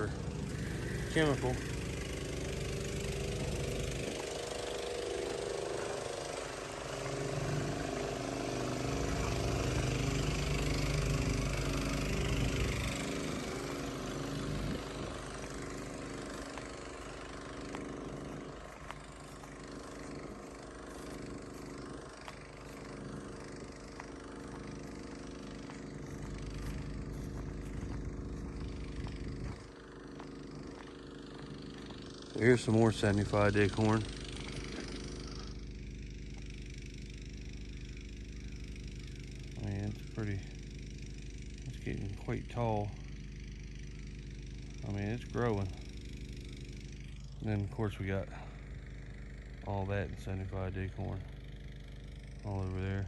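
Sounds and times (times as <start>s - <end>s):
vehicle engine running: 0.0s - 53.0s
road and wind noise: 6.8s - 31.0s.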